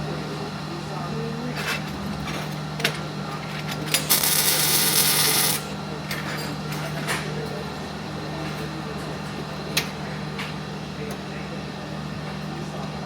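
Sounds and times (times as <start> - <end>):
welding arc crackling and hissing: 4.0 - 5.7.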